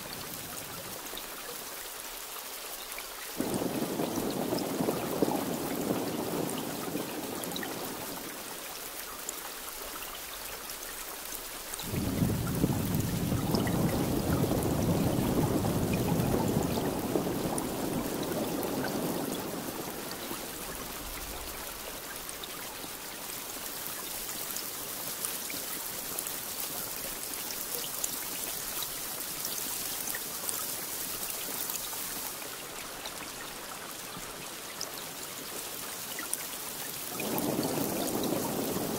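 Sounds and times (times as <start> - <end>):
steady rain falling: 0.0 - 38.9
thunder rolling: 3.4 - 8.2, 11.8 - 21.9, 37.2 - 38.9.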